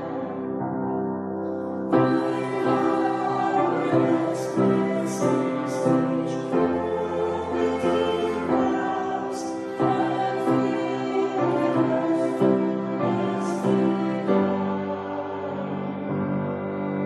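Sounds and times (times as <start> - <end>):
instrumental accompaniment: 0.0 - 17.0
voices singing slow piece: 0.0 - 17.0.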